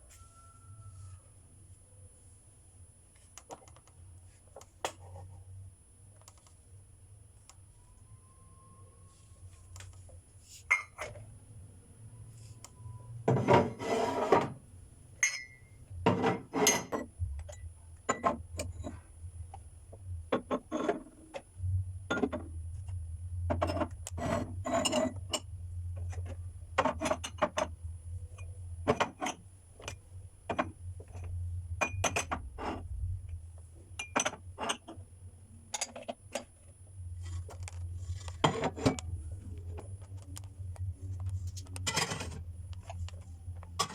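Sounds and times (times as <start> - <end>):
steady low hum: 0.0 - 43.9
household objects knocking and clinking: 15.2 - 19.0, 22.1 - 22.5, 34.0 - 35.0.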